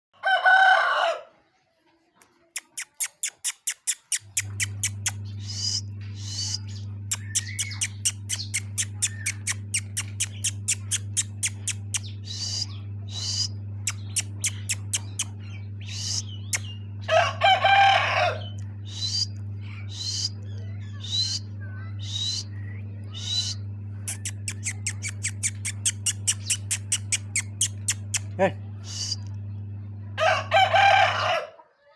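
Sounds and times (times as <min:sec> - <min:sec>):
rooster crowing: 0:00.2 - 0:01.5, 0:17.0 - 0:18.6, 0:30.2 - 0:31.7
steady low hum: 0:04.0 - 0:31.6.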